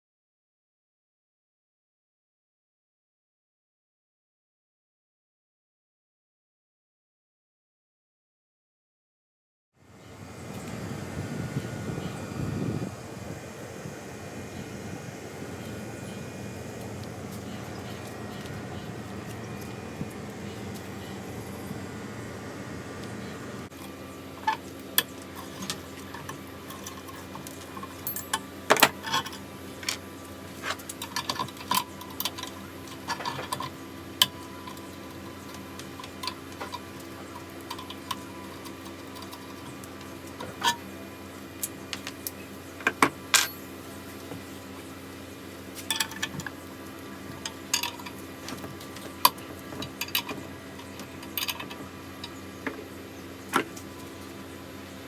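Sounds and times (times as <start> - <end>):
steady low hum: 9.8 - 55.0
metal tools clinking: 25.4 - 30.0.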